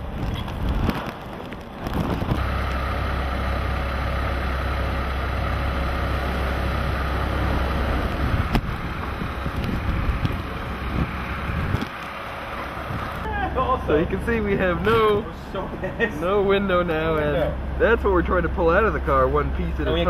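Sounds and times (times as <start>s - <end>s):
engine knocks: 0.0s - 16.0s
car engine humming: 0.0s - 20.0s.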